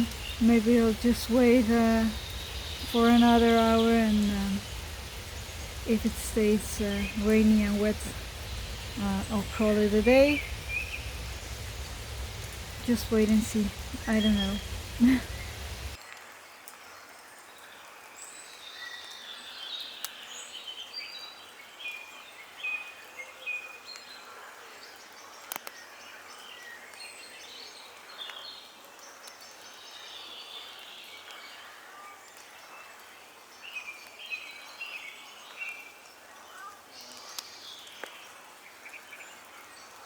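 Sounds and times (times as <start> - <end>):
songbirds singing: 0.0 - 16.0
faint steady hiss: 0.0 - 23.3.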